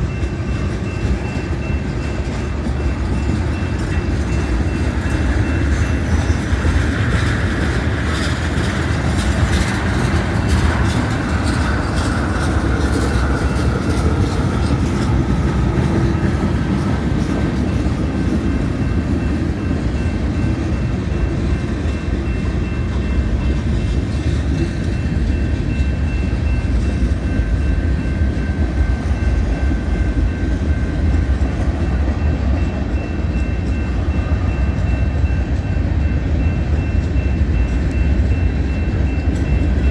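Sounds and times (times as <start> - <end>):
train wheels rumbling on rail: 0.0 - 39.9
wheels clicking over rail joints: 0.2 - 19.5.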